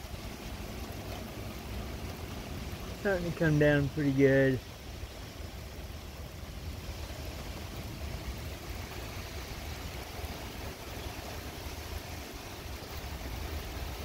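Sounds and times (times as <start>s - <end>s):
rain hissing: 0.0s - 14.0s
low rumble of thunder: 4.6s - 14.0s.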